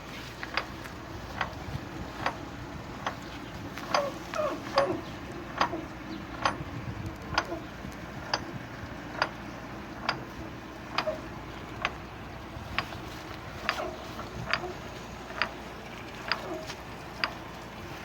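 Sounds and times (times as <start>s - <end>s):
irrigator mechanism ticking: 0.0s - 18.0s.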